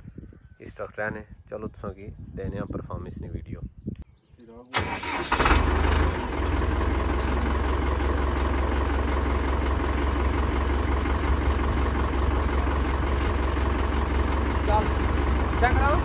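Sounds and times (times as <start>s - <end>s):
tractor diesel engine idling: 4.8s - 16.0s.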